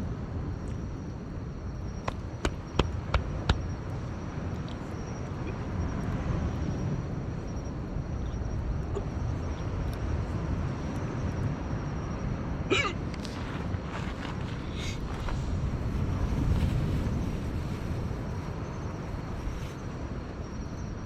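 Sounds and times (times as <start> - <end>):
campfire burning: 1.3 - 20.5
fire crackles: 1.8 - 20.5.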